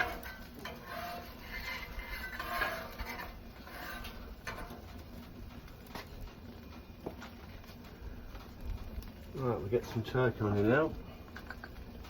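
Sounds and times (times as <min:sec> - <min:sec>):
spatula clicking on griddle: 0:00.0 - 0:07.4
low steady hum: 0:00.0 - 0:12.0.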